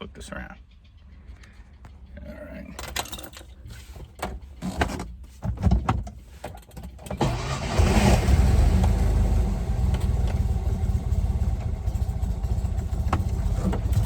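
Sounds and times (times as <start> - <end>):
car engine idling unevenly: 0.0 - 14.0
handling knocks and clicks: 2.7 - 7.2, 12.9 - 14.0.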